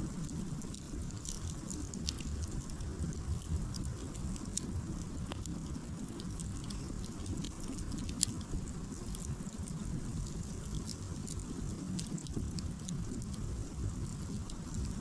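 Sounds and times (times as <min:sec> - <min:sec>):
campfire crackling: 0:00.0 - 0:15.0
low steady rumble: 0:00.0 - 0:15.0.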